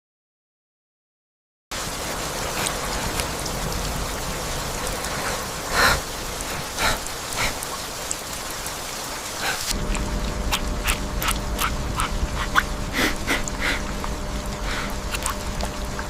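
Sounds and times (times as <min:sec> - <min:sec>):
rain with drops pattering: 0:01.7 - 0:16.0
deep rumble: 0:09.7 - 0:16.0
steady low hum: 0:09.7 - 0:16.0.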